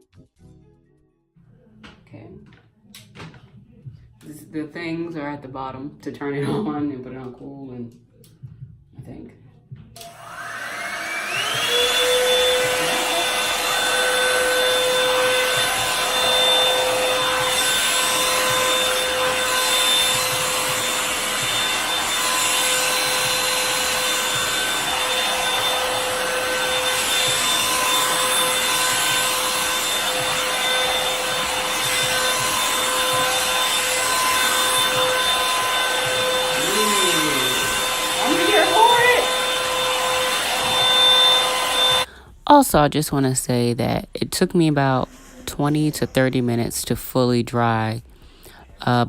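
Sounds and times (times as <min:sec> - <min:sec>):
hair dryer brush motor whining: 0:10.0 - 0:42.2.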